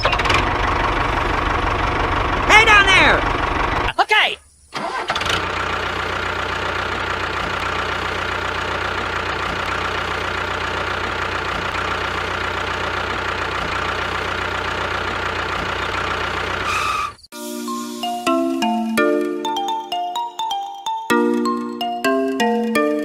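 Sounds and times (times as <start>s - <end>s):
engine idling with knock: 0.0s - 3.9s, 5.2s - 17.2s.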